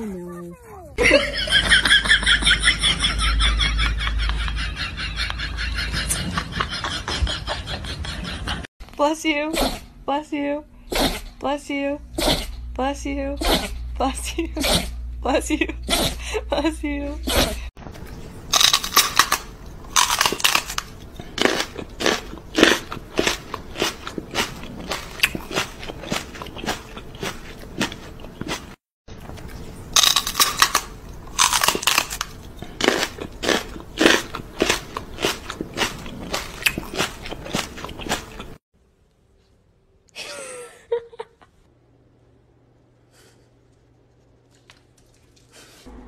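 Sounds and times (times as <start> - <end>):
person chewing crunchy food: 18.0 - 38.6.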